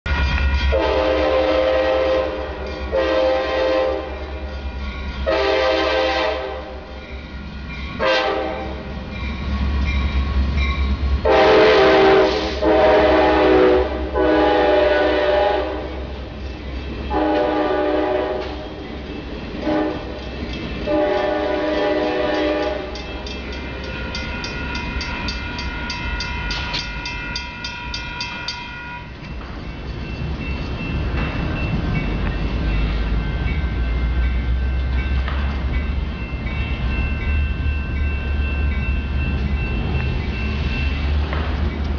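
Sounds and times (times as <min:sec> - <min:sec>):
locomotive engine rumble: 0:00.1 - 0:41.9
locomotive air horn blasts: 0:00.7 - 0:04.2, 0:05.3 - 0:06.9, 0:08.0 - 0:08.9, 0:11.2 - 0:16.1, 0:17.1 - 0:18.8, 0:19.6 - 0:20.2, 0:20.9 - 0:23.0
ringing with rapid ticks: 0:22.6 - 0:29.5.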